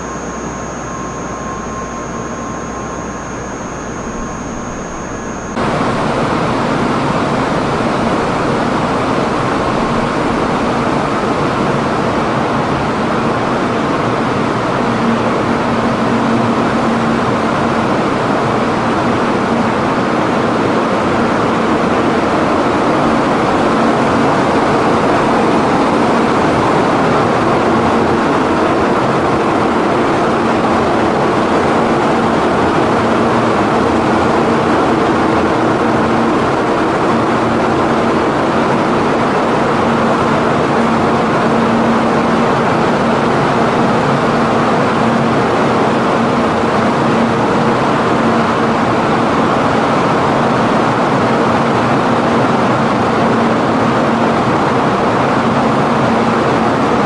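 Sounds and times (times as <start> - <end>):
constant low tone: 0.0 - 11.7.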